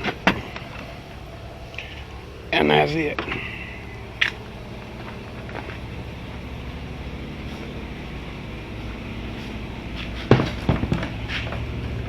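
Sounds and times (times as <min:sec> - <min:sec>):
low engine hum: 0:00.0 - 0:12.0
sharp knocks: 0:10.1 - 0:11.6.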